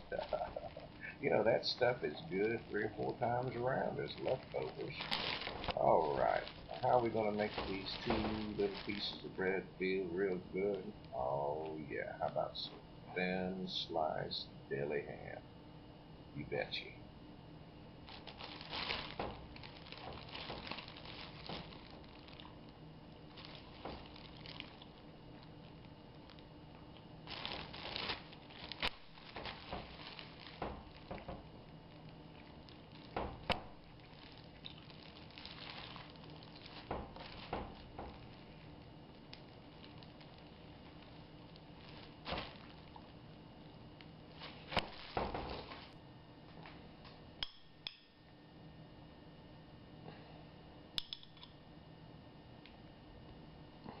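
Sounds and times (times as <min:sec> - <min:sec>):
plastic packaging crinkling: 0:00.0 - 0:10.7, 0:18.0 - 0:46.0
faint steady hum: 0:00.0 - 0:54.0.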